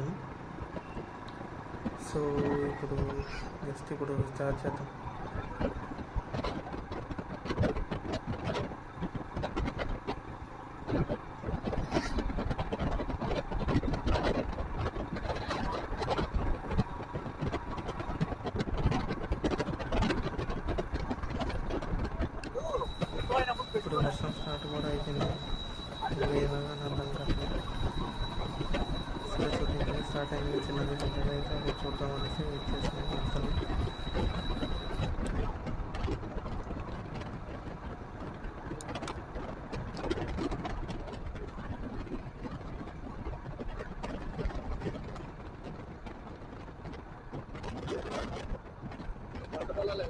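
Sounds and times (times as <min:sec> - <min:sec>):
motorcycle engine rumbling: 0:22.6 - 0:35.1
sharp ticks: 0:22.8 - 0:35.1.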